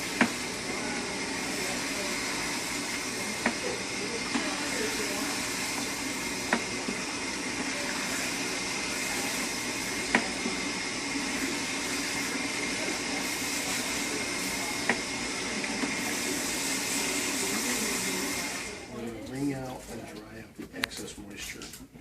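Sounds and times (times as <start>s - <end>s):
water sprayer hissing: 0.0s - 18.9s.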